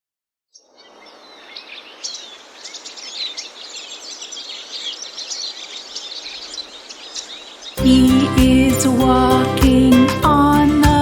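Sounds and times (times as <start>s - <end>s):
birds chirping and singing: 0.5s - 10.8s
steady background hiss: 0.6s - 7.8s.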